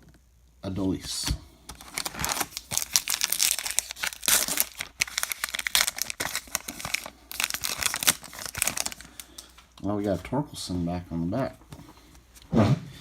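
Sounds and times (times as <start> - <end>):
plastic wrapper crinkling: 1.7 - 9.8.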